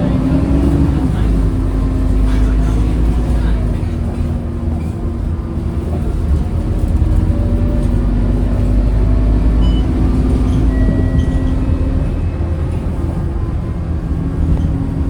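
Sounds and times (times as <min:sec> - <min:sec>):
bus diesel engine rumble: 0:00.0 - 0:15.0.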